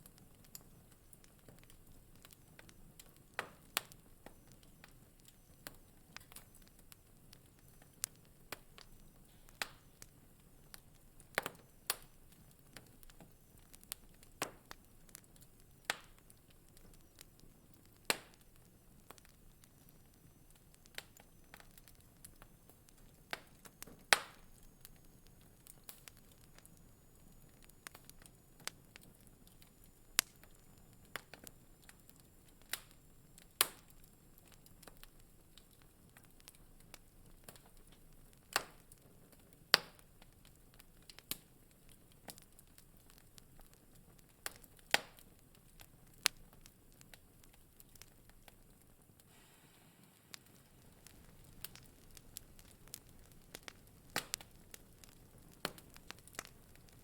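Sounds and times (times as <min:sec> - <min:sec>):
faint low hiss: 0:00.0 - 0:57.0
wood fire crackling: 0:00.0 - 0:57.0.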